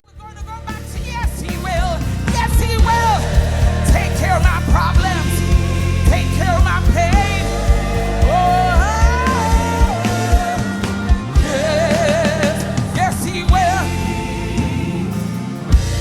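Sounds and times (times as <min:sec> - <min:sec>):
person singing melodic runs: 0:00.6 - 0:16.0
gospel band playing: 0:00.7 - 0:16.0
drum hits: 0:01.3 - 0:14.0.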